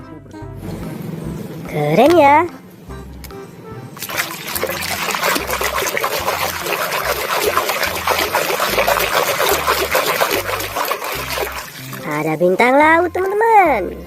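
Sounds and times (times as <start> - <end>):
water splattering on plastic toy: 4.0 - 12.3.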